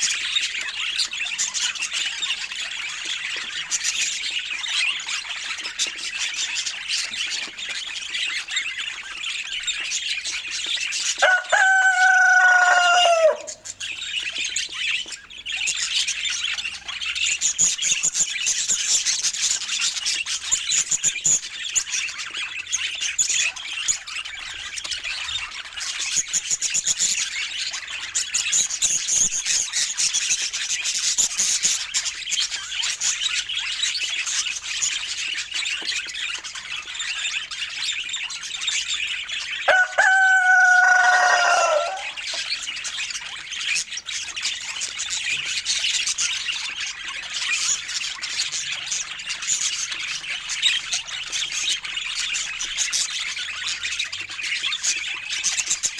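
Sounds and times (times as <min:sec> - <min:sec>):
budgerigars chattering and chirping: 0:00.0 - 0:55.9
drawn-out bird call: 0:10.8 - 0:15.0, 0:39.4 - 0:42.9.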